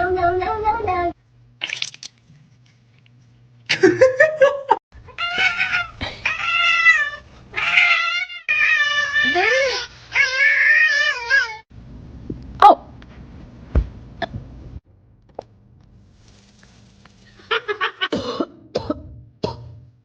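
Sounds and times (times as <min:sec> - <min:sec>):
cat yowling: 0:05.1 - 0:11.6.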